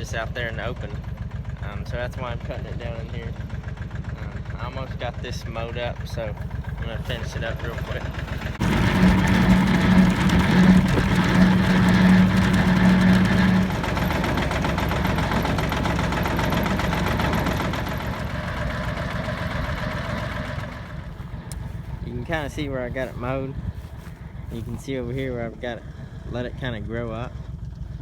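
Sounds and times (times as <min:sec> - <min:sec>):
tractor mowing drone: 0:00.0 - 0:28.0
strong hum: 0:06.2 - 0:28.0.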